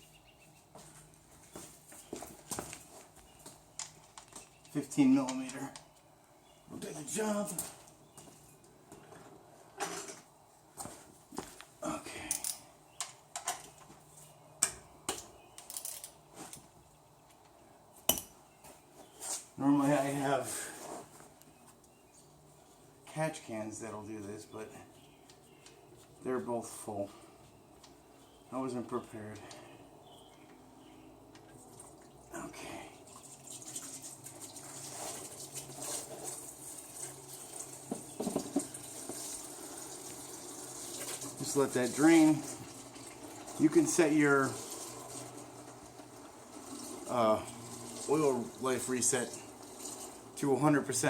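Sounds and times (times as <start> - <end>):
metal tools clinking: 12.2 - 12.7, 15.6 - 16.6
oil pouring into container: 33.1 - 50.4.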